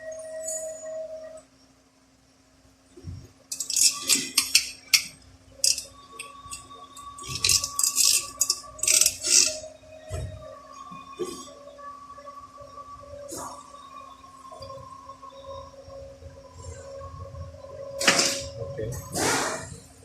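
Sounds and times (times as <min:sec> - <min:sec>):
faint steady hum: 0:00.0 - 0:20.0
small metal parts clinking: 0:03.5 - 0:09.6.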